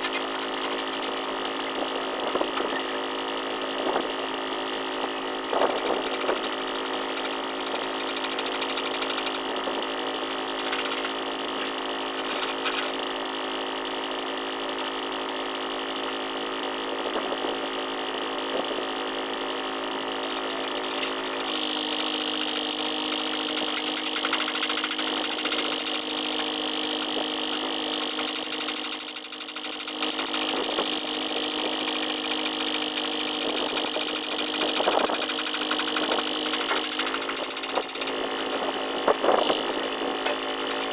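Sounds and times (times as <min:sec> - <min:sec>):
bright high machine tone: 0:00.0 - 0:03.8
machinery droning: 0:17.1 - 0:40.9.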